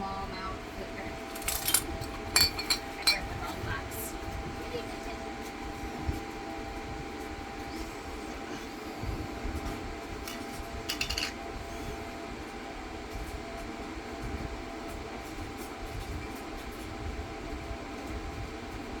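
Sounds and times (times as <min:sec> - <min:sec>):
mechanical hum: 0:00.0 - 0:19.0
jars and lids clinking: 0:01.3 - 0:03.2, 0:10.3 - 0:11.4.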